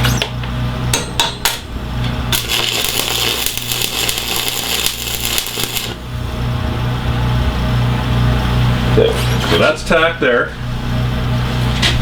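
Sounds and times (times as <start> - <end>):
welding arc crackling: 2.2 - 6.4.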